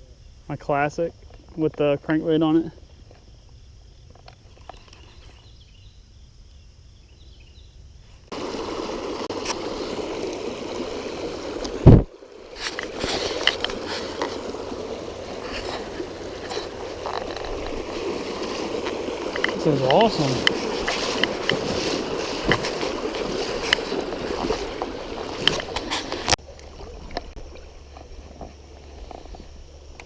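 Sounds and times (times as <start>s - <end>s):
faint insect chirring: 0.0s - 24.7s
river water gurgling: 8.3s - 30.0s.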